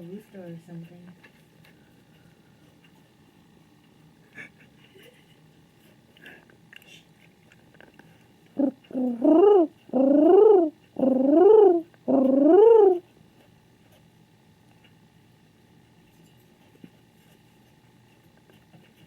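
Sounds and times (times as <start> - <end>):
pigeon cooing: 8.6 - 13.1.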